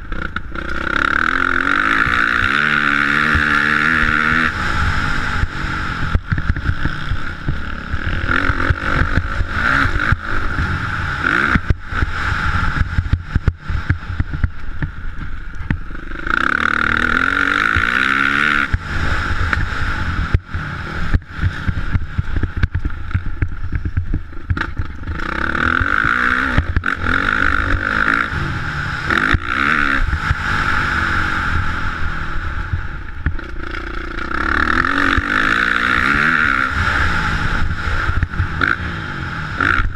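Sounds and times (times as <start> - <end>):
dirt bike engine revving: 0.0 - 39.9
short knocks and buffets: 5.3 - 10.8, 11.5 - 16.3, 18.6 - 28.0.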